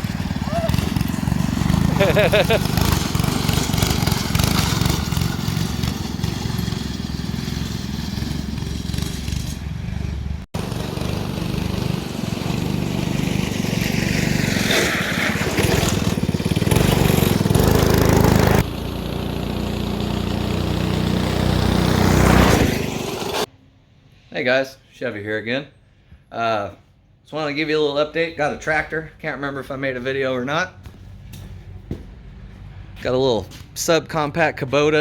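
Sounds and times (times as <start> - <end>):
small engine running: 0.0 - 23.5.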